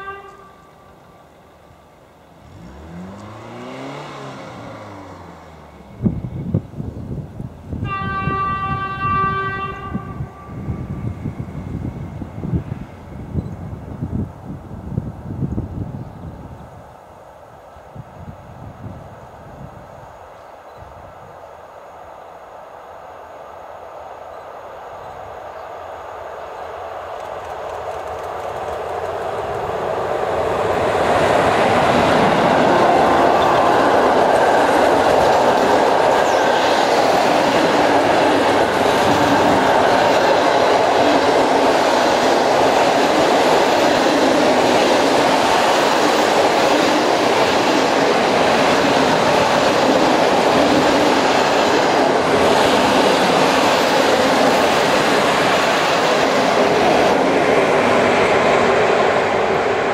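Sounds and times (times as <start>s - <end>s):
electric locomotive passing: 0.0s - 59.9s
train wheels rolling on rails: 24.3s - 59.9s.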